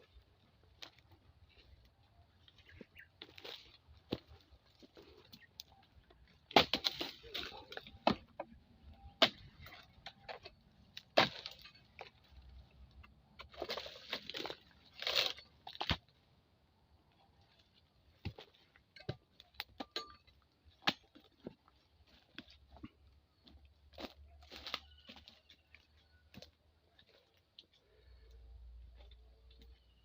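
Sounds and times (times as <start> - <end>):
palm fronds rustling: 13.5 - 15.9.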